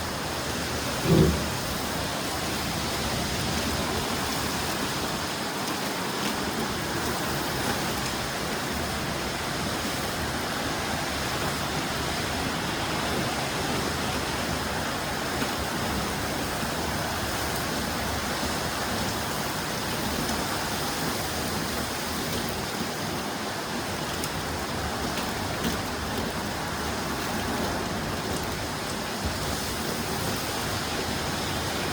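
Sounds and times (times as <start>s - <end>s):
heavy rain pouring: 0.0s - 31.9s.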